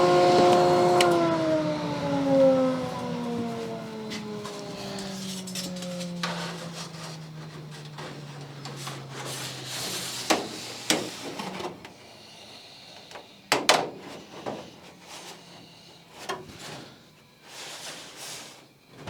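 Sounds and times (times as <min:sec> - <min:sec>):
motor hum winding down: 0:00.0 - 0:10.9.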